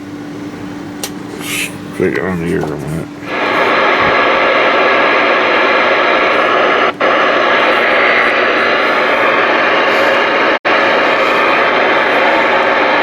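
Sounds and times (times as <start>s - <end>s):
radio static hiss: 1.4s - 13.0s.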